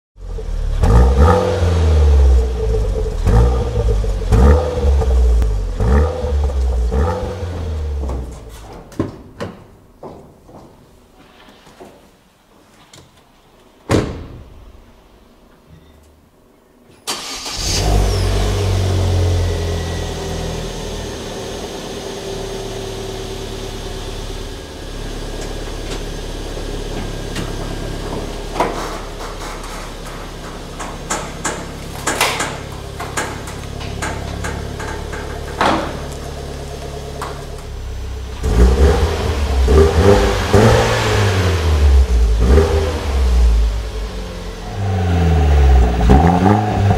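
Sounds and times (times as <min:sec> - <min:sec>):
car engine starting and idling: 0:00.2 - 0:08.7, 0:17.0 - 0:46.9
engine revving: 0:00.7 - 0:08.1, 0:38.3 - 0:46.9
thump: 0:13.9 - 0:14.6.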